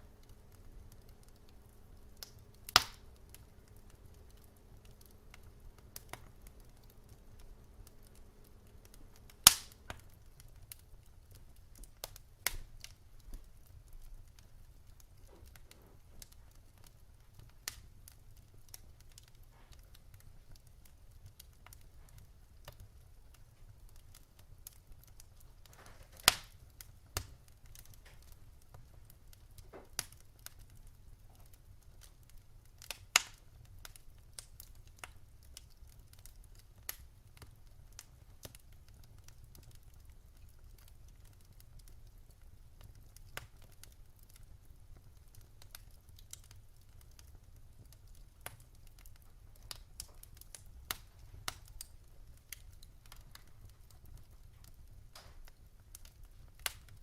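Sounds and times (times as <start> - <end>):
faint low hum: 0.0 - 23.8
wood fire crackling and popping: 0.0 - 57.0.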